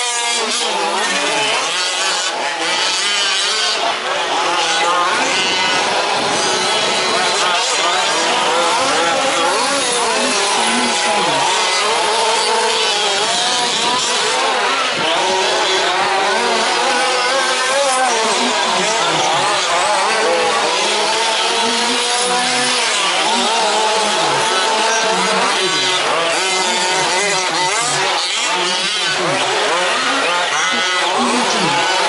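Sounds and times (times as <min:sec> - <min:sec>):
rc truck engines revving: 0:00.0 - 0:32.0.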